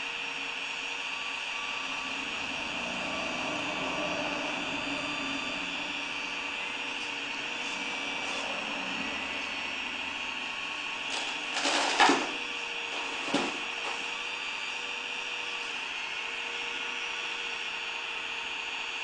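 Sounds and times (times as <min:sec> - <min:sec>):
toy excavator motors whining: 0:00.0 - 0:19.0
scraping noises: 0:06.9 - 0:09.2, 0:11.0 - 0:14.1.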